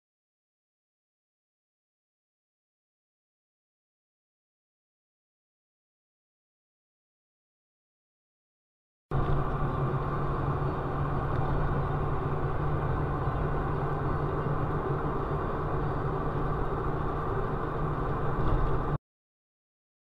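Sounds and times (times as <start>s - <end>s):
road noise: 9.1s - 19.0s
vehicle engine: 9.1s - 19.0s.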